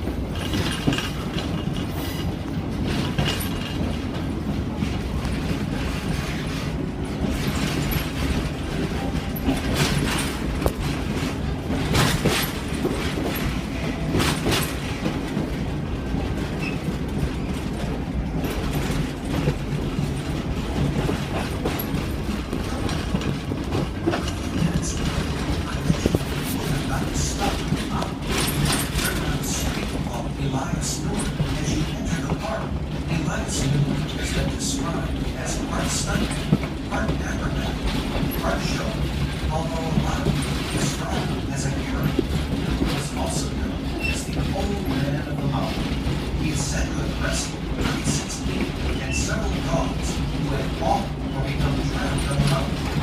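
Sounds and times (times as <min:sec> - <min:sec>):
train rumbling: 0:00.0 - 0:53.0
train wheels clacking over rail joints: 0:00.0 - 0:53.0.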